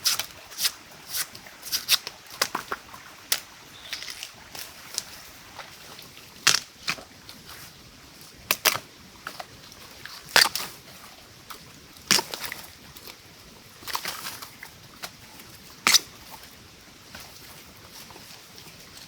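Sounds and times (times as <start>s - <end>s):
sharp cracks and snaps: 6.5s - 7.1s.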